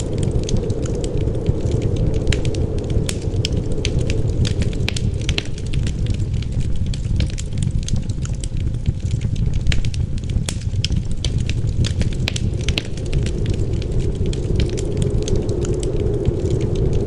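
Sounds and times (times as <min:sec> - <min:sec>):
low rumble of wind: 0:00.0 - 0:17.0
wood fire crackling: 0:00.0 - 0:17.0.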